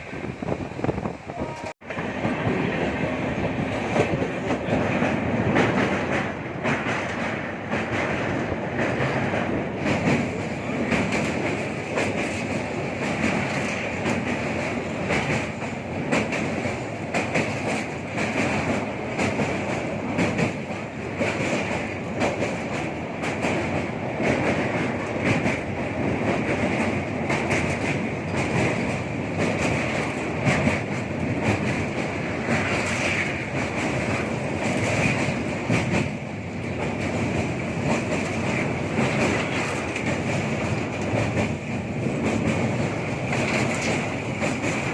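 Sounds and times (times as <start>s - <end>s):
train rumbling: 0.0s - 44.9s
wheels clicking over rail joints: 0.4s - 44.9s.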